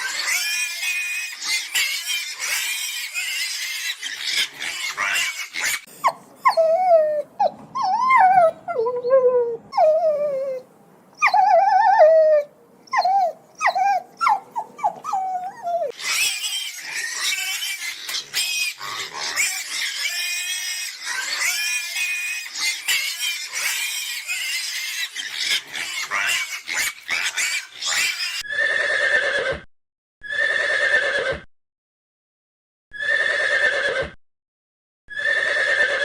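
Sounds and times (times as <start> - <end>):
animal squealing: 0.0 - 8.6, 11.2 - 29.6
animal yelping: 0.0 - 10.6, 11.2 - 29.6.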